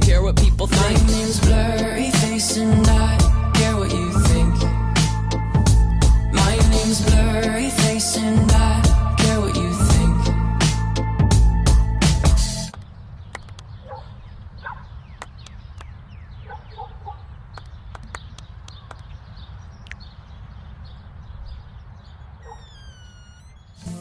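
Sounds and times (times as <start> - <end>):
steady low rumble: 0.0 - 10.4
sharp clicks: 12.7 - 13.8, 17.5 - 19.2, 19.8 - 20.1
small birds chirping: 12.7 - 24.0.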